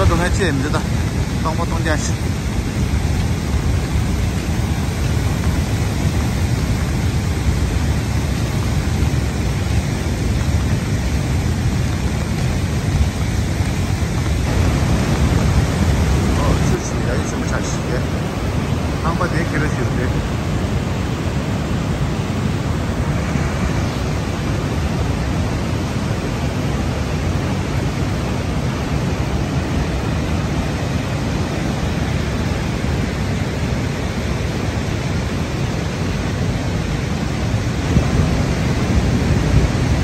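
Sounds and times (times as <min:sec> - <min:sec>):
rushing floodwater roar: 0:00.0 - 0:40.0.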